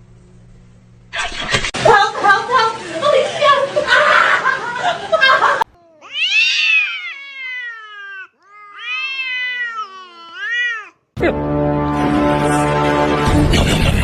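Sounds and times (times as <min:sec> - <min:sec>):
cat meowing: 0:05.7 - 0:11.0.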